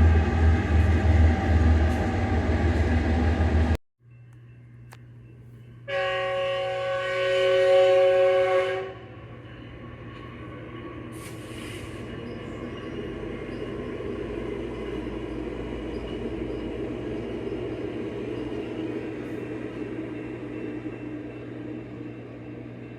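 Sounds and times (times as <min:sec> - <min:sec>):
passing train rumble: 0:00.0 - 0:22.9
locomotive horn blast: 0:05.9 - 0:09.1
brief hiss: 0:11.2 - 0:12.1.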